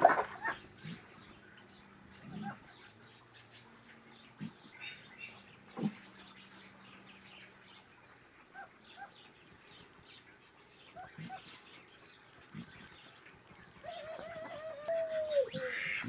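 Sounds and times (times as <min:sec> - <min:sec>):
small birds chirping faintly: 0:00.0 - 0:16.0.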